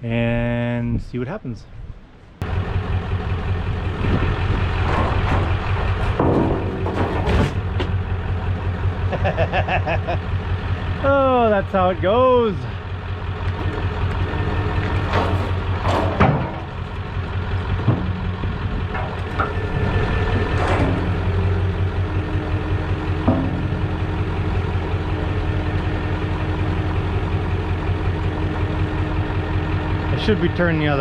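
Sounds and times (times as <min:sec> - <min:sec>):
engine idling: 0:02.3 - 0:31.0
sharp metallic knocks and clanks: 0:04.2 - 0:08.7, 0:13.3 - 0:30.4.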